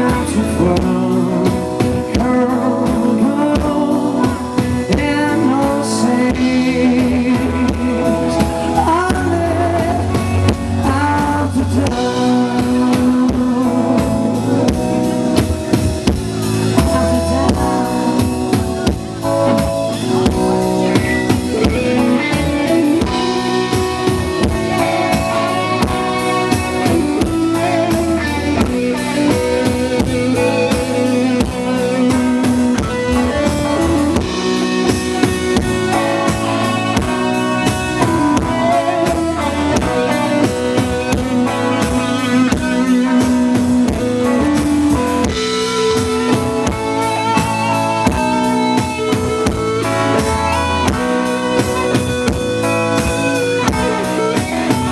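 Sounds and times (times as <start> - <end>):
live bluesy rock band: 0.0 - 54.9
person singing: 0.0 - 54.9.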